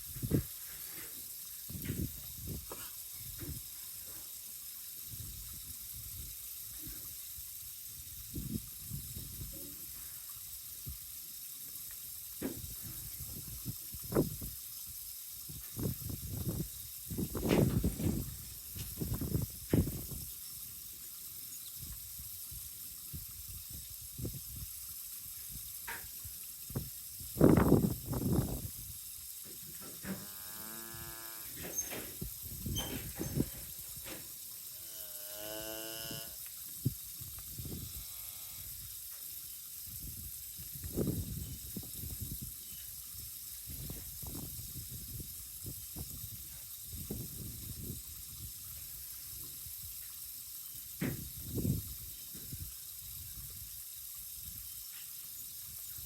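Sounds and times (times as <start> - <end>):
wind rumbling on microphone: 0.0 - 0.6, 1.7 - 3.7, 5.1 - 7.1, 7.9 - 10.1, 12.5 - 14.7, 15.4 - 20.4, 21.8 - 29.1, 30.9 - 34.2, 36.0 - 39.0, 39.9 - 50.0, 51.0 - 53.8
cattle mooing: 30.2 - 31.6.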